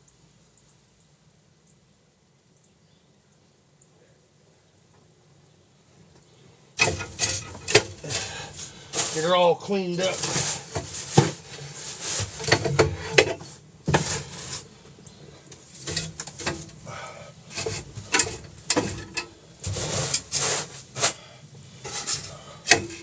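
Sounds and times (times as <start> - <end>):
sharp knocks: 6.8 - 8.4
scraping snow and ice off deck: 6.8 - 23.0.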